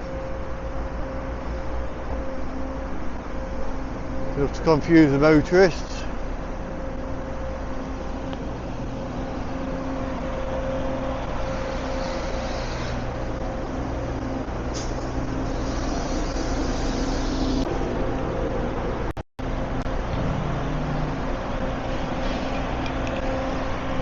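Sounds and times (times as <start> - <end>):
low engine hum: 12.9 - 24.0
tyres rushing on road: 13.0 - 24.0.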